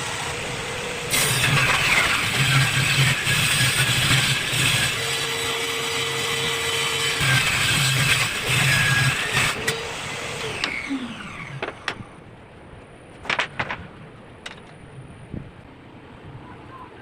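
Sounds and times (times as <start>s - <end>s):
table saw cutting plywood: 0.0s - 12.0s
saw blade spinning down whine: 0.0s - 12.2s.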